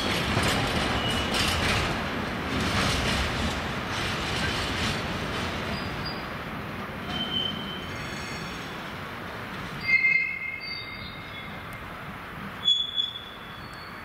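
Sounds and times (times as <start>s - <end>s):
train rumbling: 0.0s - 14.0s
train wheels squealing: 0.8s - 1.6s, 5.7s - 6.3s, 7.1s - 8.8s, 9.8s - 11.6s, 12.6s - 14.0s.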